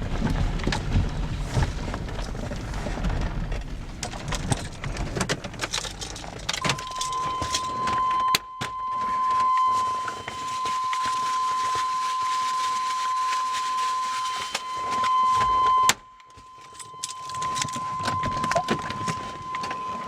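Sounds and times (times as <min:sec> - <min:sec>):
keys jangling and clicking: 0:05.6 - 0:07.9, 0:16.6 - 0:19.2
steady high-pitched tone: 0:06.6 - 0:20.0.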